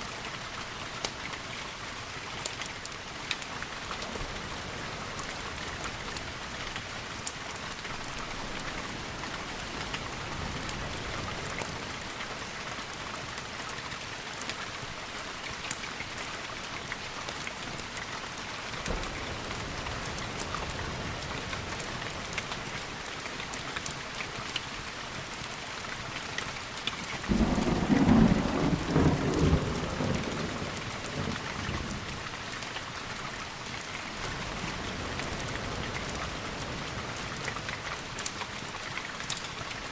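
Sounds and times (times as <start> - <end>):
steady rain: 0.0 - 39.9
thunder rolling: 27.3 - 31.4.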